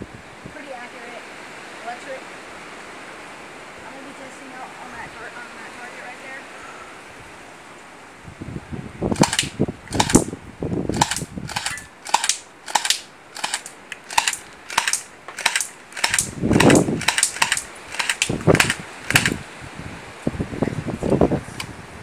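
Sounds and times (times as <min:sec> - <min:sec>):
airsoft pistol shots: 0:09.2 - 0:10.3, 0:11.0 - 0:19.4.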